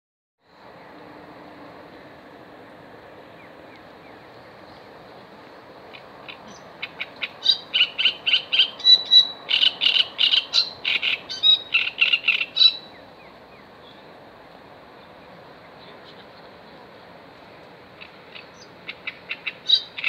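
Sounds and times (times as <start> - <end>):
songbird chattering song: 3.2 - 14.2, 15.0 - 17.2, 17.9 - 20.0.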